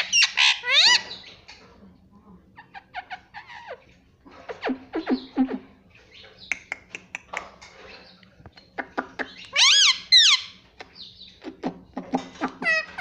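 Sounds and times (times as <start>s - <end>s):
loud parrot calls: 0.0s - 1.2s, 9.2s - 10.6s, 12.4s - 13.0s
parrot clicking and chattering: 6.5s - 7.7s, 8.5s - 13.0s.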